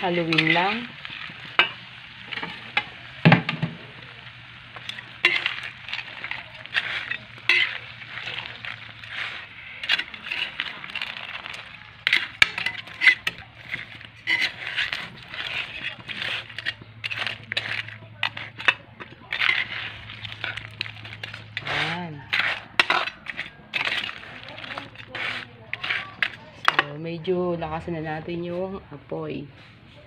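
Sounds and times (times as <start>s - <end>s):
butter sizzling in a pan: 0.0s - 26.8s
spatula scraping a pan: 0.0s - 26.9s.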